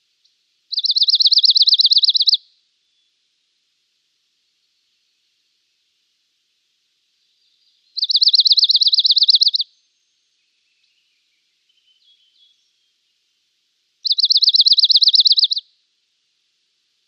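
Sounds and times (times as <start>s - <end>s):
bird singing fast trill: 0.7s - 3.1s, 7.3s - 13.0s, 14.0s - 15.6s.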